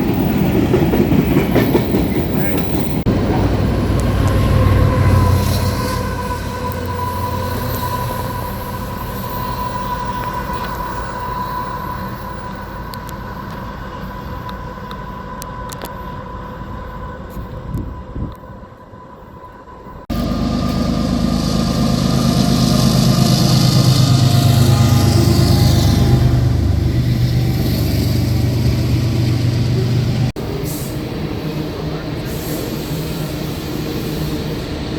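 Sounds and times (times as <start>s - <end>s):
train cars rumbling on rails: 0.0s - 18.2s, 20.1s - 34.9s
low engine-like rumble: 20.1s - 30.4s.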